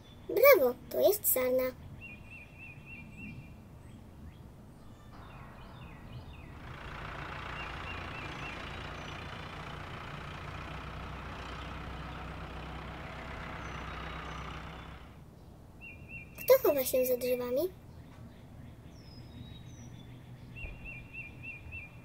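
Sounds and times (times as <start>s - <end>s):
cartoon car engine hum: 0.2s - 1.7s, 4.9s - 15.4s.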